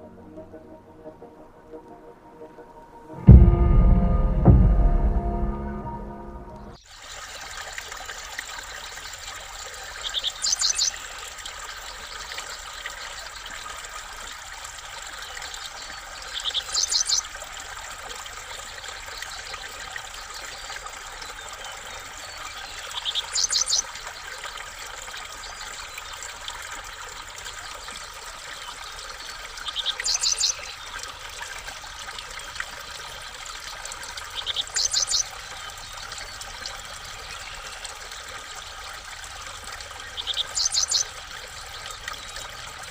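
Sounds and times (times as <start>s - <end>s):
steady trickling: 6.8s - 42.9s
songbird calling: 10.0s - 11.0s, 16.2s - 17.3s, 22.8s - 23.9s, 29.7s - 30.8s, 34.3s - 36.0s, 40.0s - 41.1s.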